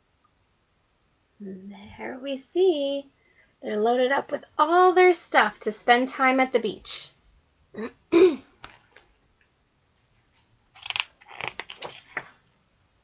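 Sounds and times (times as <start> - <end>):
paper pages rustling: 8.6 - 9.2, 10.2 - 12.7.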